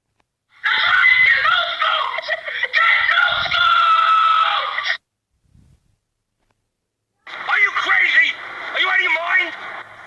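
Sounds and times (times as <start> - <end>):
shrill screaming cry: 0.5 - 5.0.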